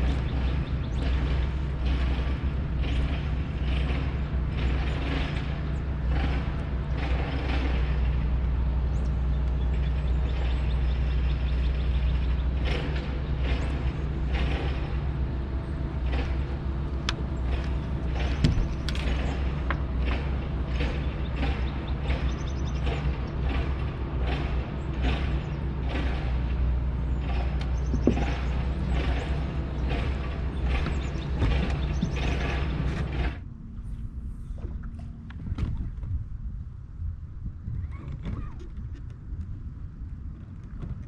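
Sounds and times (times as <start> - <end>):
steady low hum: 0.0 - 41.0
mechanical creaking and clicking: 15.9 - 33.5.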